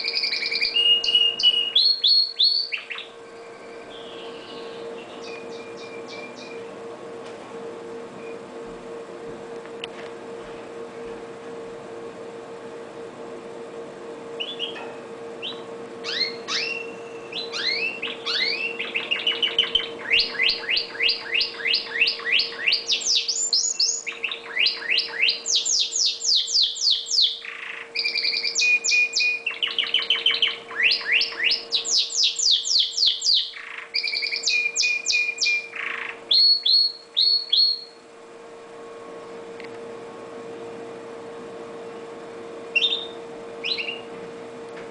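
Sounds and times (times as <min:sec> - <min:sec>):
canary singing trills: 0:00.0 - 0:06.7, 0:14.3 - 0:38.0, 0:42.6 - 0:44.1
steady low hum: 0:00.0 - 0:44.9.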